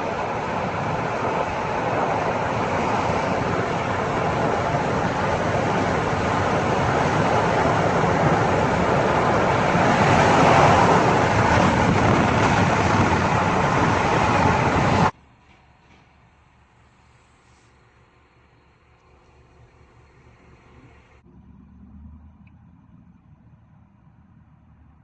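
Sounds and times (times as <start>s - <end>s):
car road and wind noise: 0.0s - 15.2s.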